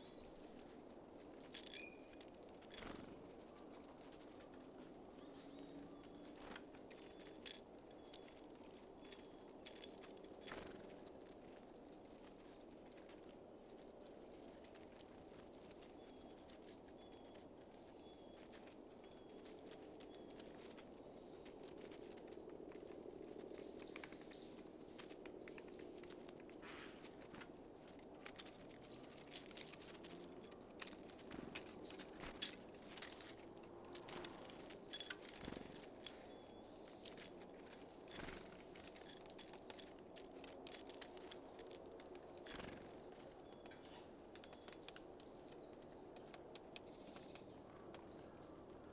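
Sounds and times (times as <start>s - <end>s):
songbirds chirping: 0.0s - 48.9s
birds tapping at feeder: 1.4s - 3.4s, 22.8s - 48.9s.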